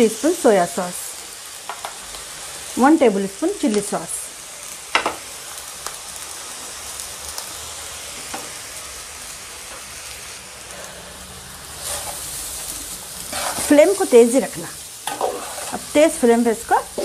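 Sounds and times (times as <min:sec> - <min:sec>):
rice sizzling in a pan: 0:00.0 - 0:17.0
metal spatula scraping a pan: 0:13.2 - 0:14.0, 0:15.0 - 0:16.0.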